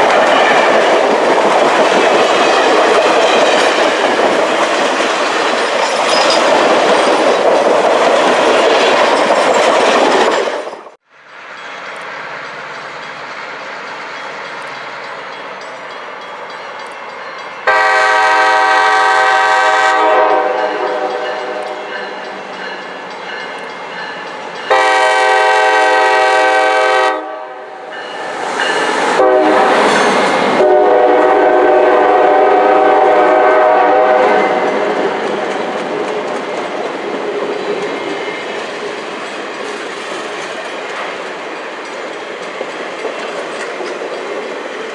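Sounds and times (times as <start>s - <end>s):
train rumbling past: 0.0s - 44.9s
train horn blasts: 17.6s - 22.3s, 24.7s - 27.9s, 29.1s - 34.9s.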